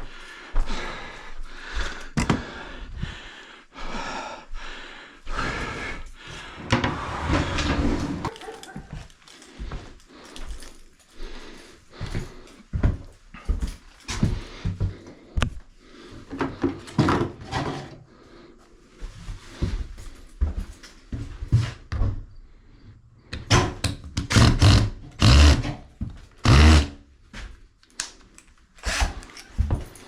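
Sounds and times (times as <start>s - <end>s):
thumps and knocks of objects: 2.2s - 2.5s
rustling of objects: 7.4s - 21.9s, 27.2s - 30.0s.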